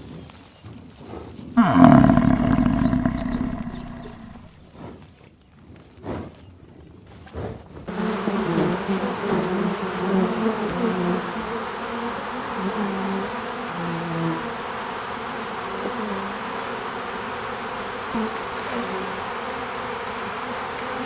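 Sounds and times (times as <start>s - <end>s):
insects buzzing: 1.6s - 4.6s, 7.9s - 21.0s.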